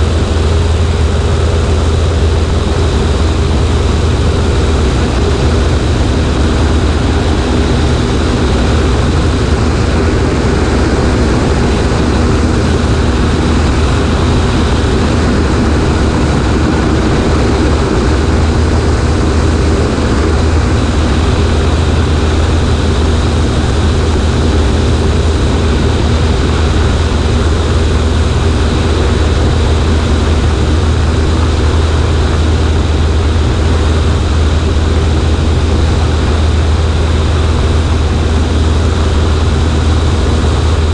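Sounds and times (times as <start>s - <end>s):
propeller engine droning: 0.0s - 40.9s.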